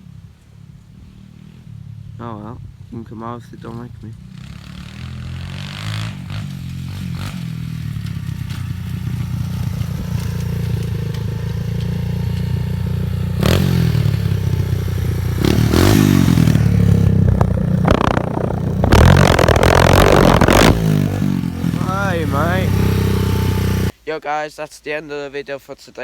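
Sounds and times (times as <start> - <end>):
pit bike engine revving: 3.7 - 23.9.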